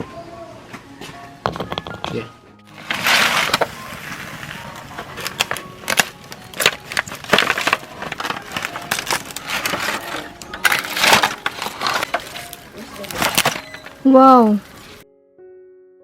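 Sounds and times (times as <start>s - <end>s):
sharp cracks and crunches: 2.7s - 15.0s.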